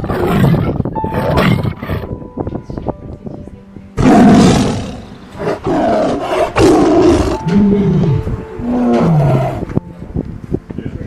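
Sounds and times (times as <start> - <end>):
tiger low calls: 4.0 - 9.7
tiger roaring: 4.0 - 9.7.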